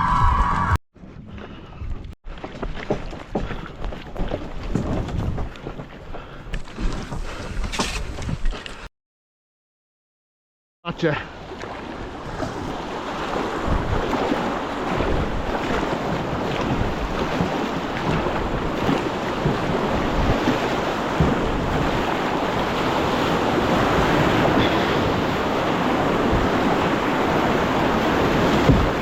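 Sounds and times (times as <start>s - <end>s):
wind buffeting microphone: 3.3s - 8.9s, 11.9s - 29.0s
rushing water: 10.9s - 29.0s.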